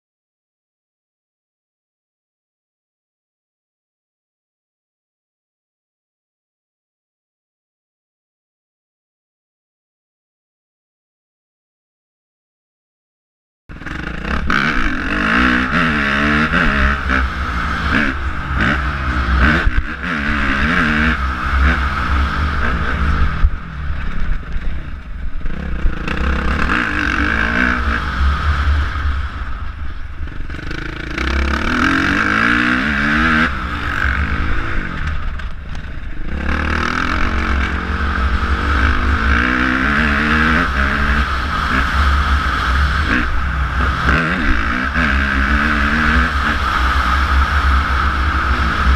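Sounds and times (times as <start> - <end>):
motocross bike engine revving: 13.7 - 48.9.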